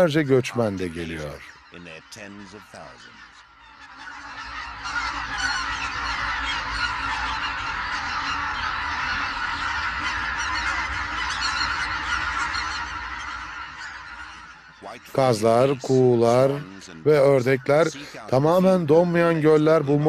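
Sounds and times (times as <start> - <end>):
geese honking: 0.0 - 20.0.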